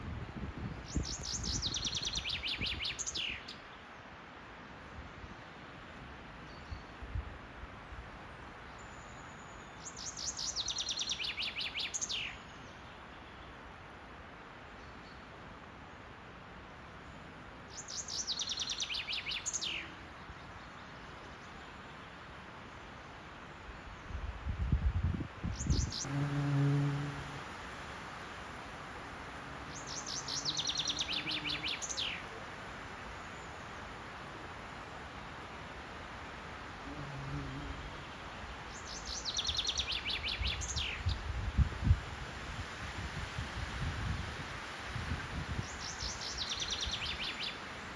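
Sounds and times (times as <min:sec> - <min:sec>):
background hiss: 0:00.0 - 0:47.9
chaffinch singing: 0:00.9 - 0:03.6, 0:25.6 - 0:27.4, 0:29.0 - 0:34.5, 0:38.7 - 0:41.2.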